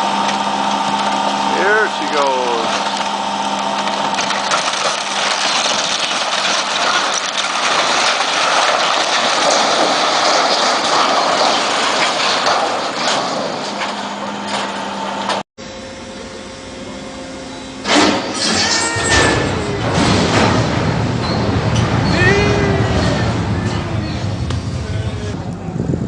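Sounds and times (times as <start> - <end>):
excavator engine running hard: 0.0 - 26.0
metallic clanks: 17.8 - 24.9.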